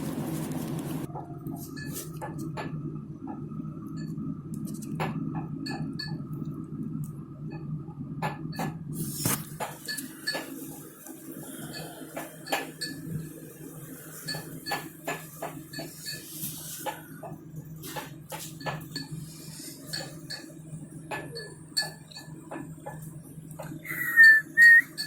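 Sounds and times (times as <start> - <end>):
dishes and cutlery clinking: 9.6 - 10.6, 11.6 - 13.1, 14.2 - 16.3, 21.1 - 22.3.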